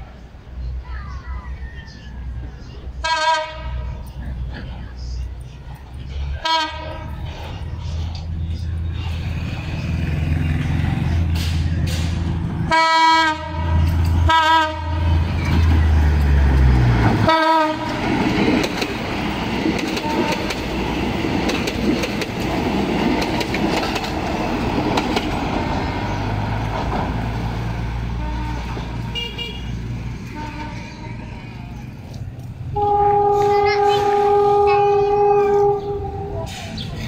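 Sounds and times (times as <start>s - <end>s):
diesel engine rumble: 0.0s - 37.0s
train horn blasts: 3.0s - 4.0s, 6.4s - 7.2s, 12.6s - 15.4s, 17.2s - 18.0s, 20.0s - 20.6s, 28.2s - 31.5s, 32.7s - 36.7s
train wheels clattering on rails: 7.0s - 12.6s, 15.3s - 27.7s.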